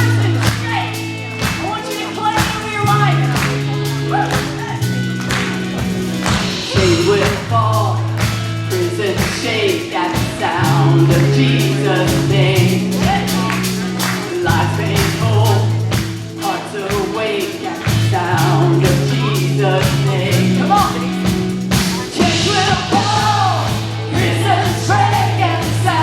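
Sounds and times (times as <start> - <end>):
rock praise band playing: 0.0 - 26.0
person singing: 6.6 - 26.0.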